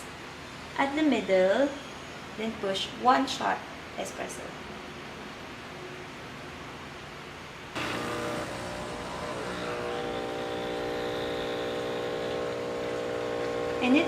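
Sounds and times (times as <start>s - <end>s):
espresso machine pump humming: 7.8s - 14.0s.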